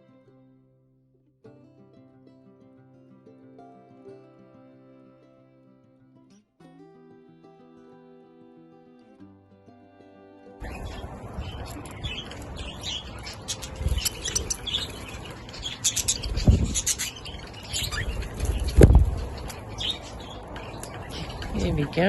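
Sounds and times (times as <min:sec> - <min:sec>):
budgerigars chirping: 0:10.6 - 0:22.0
dull low thumps: 0:16.3 - 0:16.9.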